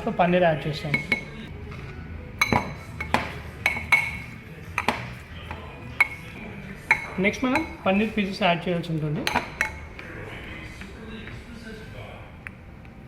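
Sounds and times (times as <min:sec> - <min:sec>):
metal spoon clinking against bowl: 0:00.8 - 0:01.5, 0:02.4 - 0:08.2, 0:09.2 - 0:10.0.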